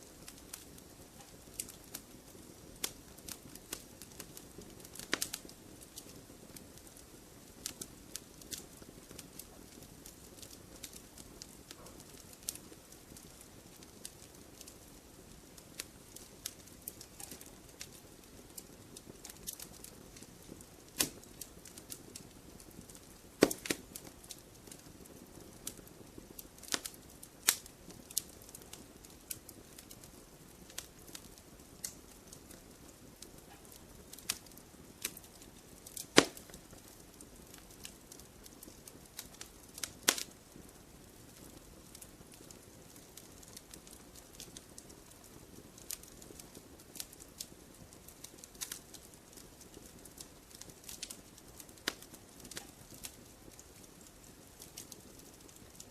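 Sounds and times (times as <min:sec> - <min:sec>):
wood fire crackling: 0:00.0 - 0:55.9.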